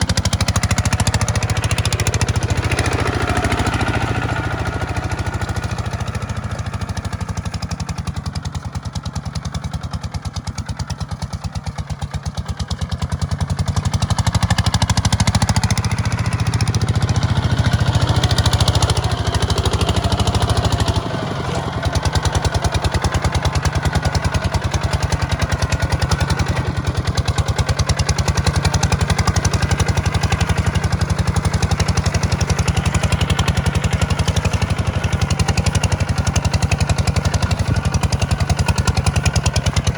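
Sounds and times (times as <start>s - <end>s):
tractor diesel engine throbbing: 0.0s - 39.9s.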